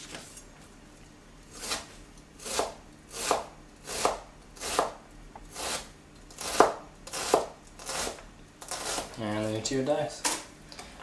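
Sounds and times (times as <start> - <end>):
knife slicing onion on board: 1.5 - 9.2.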